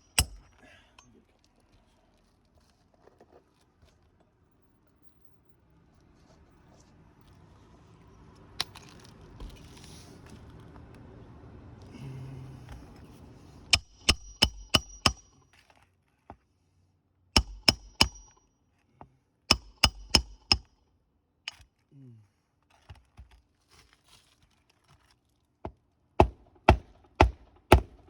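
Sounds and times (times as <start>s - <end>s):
hammer driving nails: 0.0s - 0.6s, 13.7s - 15.4s, 17.4s - 18.4s, 19.5s - 20.7s, 26.2s - 28.0s.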